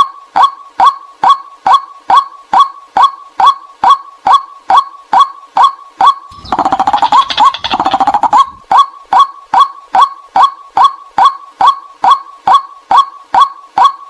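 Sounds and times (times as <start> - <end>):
bird clipped calls: 6.3 - 8.7
bird harsh chattering: 6.3 - 8.7.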